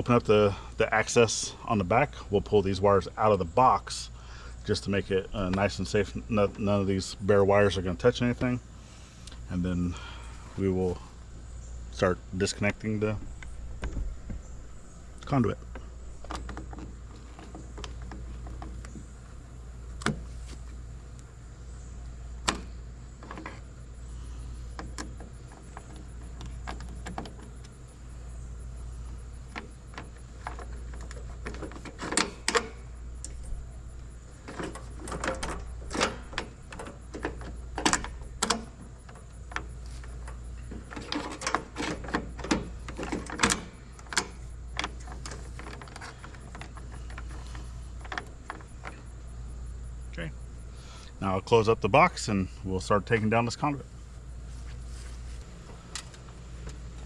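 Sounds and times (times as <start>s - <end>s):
steady low rumble: 0.0s - 40.9s.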